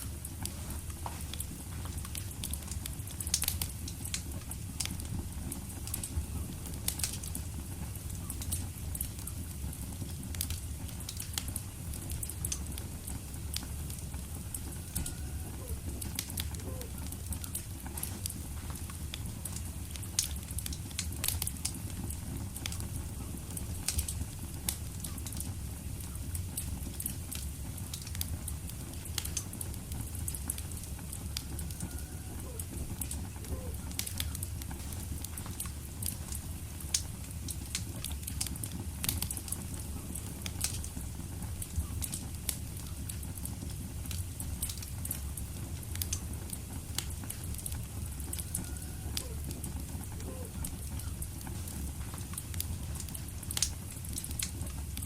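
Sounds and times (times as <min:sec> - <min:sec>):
low rumble of flames: 0:00.0 - 0:55.0
wood fire crackling: 0:00.0 - 0:55.0.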